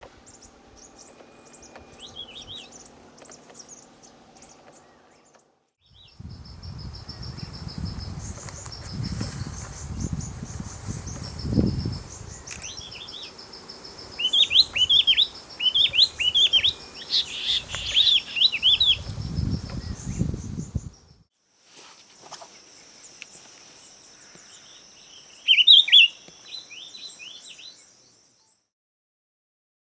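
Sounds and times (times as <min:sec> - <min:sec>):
bird wavering song phrase: 0:00.2 - 0:21.2, 0:24.0 - 0:28.6
insects chirping: 0:00.2 - 0:28.5
bird warbling phrases: 0:14.2 - 0:19.1, 0:25.4 - 0:27.4.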